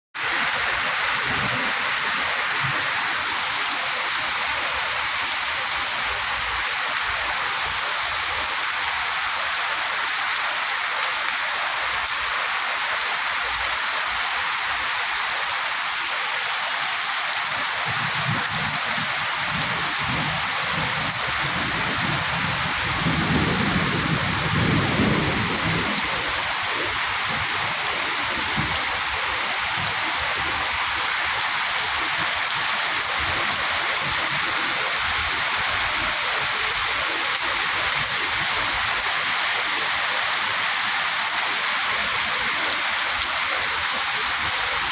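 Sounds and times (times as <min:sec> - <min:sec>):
heavy rain pouring: 0:00.2 - 0:44.9
low thunder rumbling: 0:19.5 - 0:27.6.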